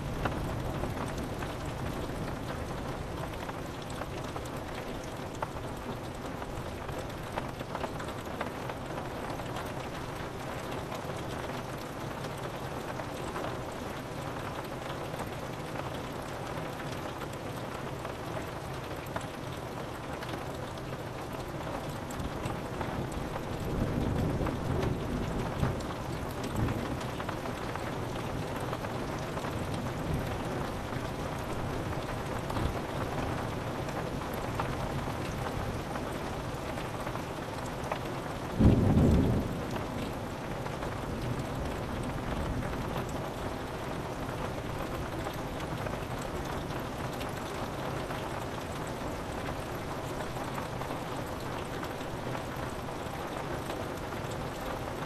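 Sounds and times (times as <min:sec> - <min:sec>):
rain pattering on window glass: 0:00.0 - 0:55.0
low clap of thunder: 0:38.6 - 0:40.2.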